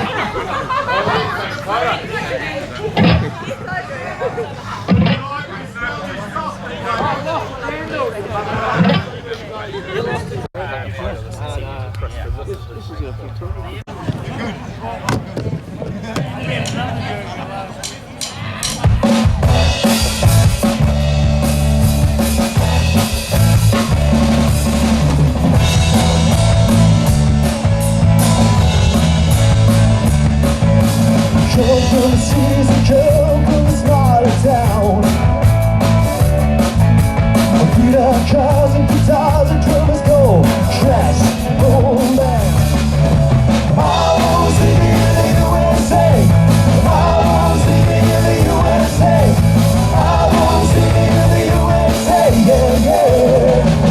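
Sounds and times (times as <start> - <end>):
loud instrumental rock music: 18.3 - 53.9.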